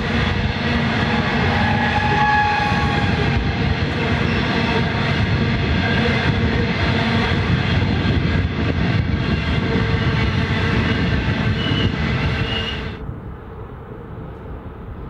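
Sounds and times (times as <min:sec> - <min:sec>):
train wheels rumbling on rails: 0:00.0 - 0:15.0
high wheel squeal: 0:10.8 - 0:13.0.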